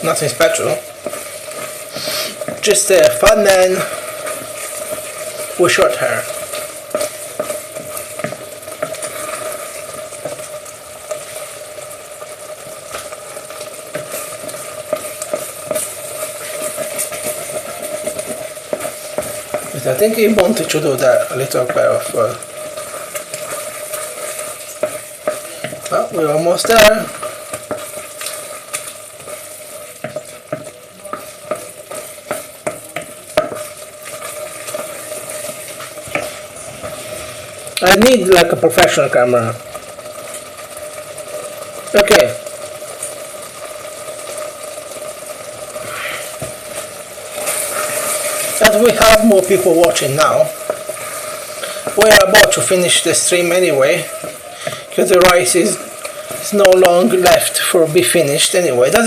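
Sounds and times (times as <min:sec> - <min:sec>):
risotto sizzling in a pan: 0:00.0 - 0:59.0
spoon scraping a pan: 0:01.0 - 0:11.4, 0:12.6 - 0:37.5, 0:45.7 - 0:57.5.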